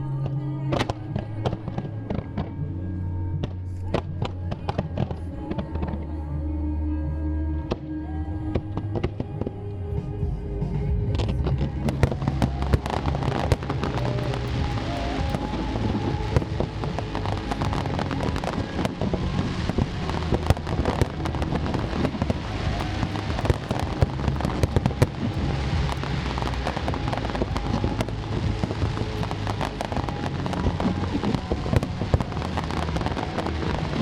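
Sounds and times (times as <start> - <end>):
faint music: 0.0 - 34.0
fireworks cracking and crackling: 11.4 - 34.0.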